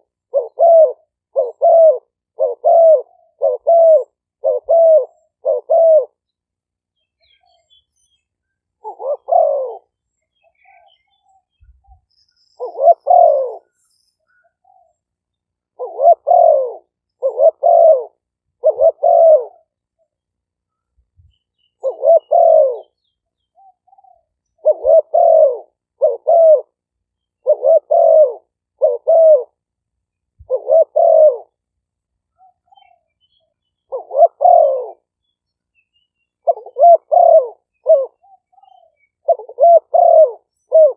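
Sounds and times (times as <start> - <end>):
dove cooing: 0.0 - 6.2, 8.8 - 12.0, 12.6 - 13.8, 14.4 - 15.0, 15.6 - 20.2, 21.8 - 26.8, 27.4 - 29.7, 30.4 - 31.7, 32.3 - 35.1, 36.4 - 40.9.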